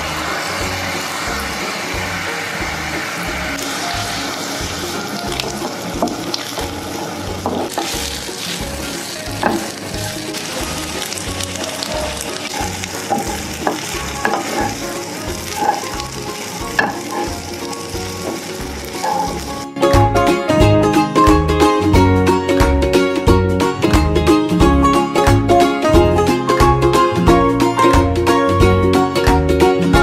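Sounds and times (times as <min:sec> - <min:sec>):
rice sizzling in a wok: 0:00.0 - 0:19.8
spatula scraping the pan: 0:07.4 - 0:19.7.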